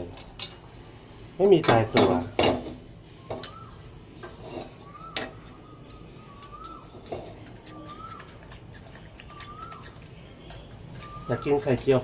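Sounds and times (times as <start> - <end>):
kitchenware clicking and clinking: 1.6 - 3.6, 4.2 - 12.0
bird whistling call: 3.2 - 3.9, 4.8 - 10.1, 10.9 - 12.0.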